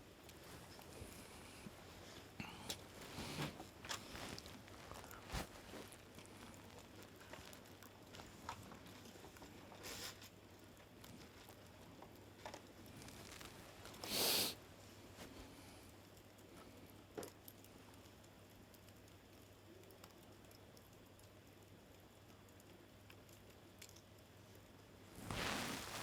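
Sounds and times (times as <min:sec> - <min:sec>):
campfire crackling faintly: 0:00.0 - 0:26.0
small pops and ticks: 0:03.6 - 0:14.0, 0:15.9 - 0:24.9
hissing burst: 0:14.1 - 0:14.6.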